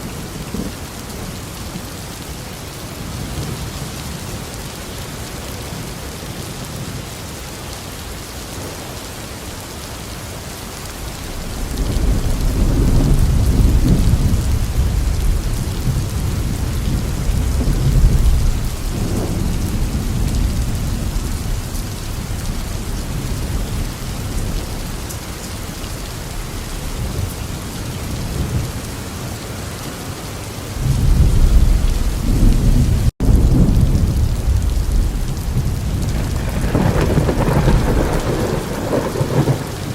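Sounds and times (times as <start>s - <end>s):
steady rain falling: 0.0s - 39.9s
deep rolling thunder: 11.2s - 25.1s, 30.8s - 39.9s.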